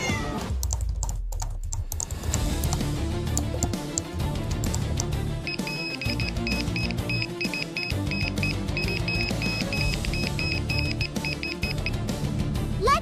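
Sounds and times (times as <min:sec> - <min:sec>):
background music: 0:00.0 - 0:13.0
short high electronic beeps: 0:05.5 - 0:12.0.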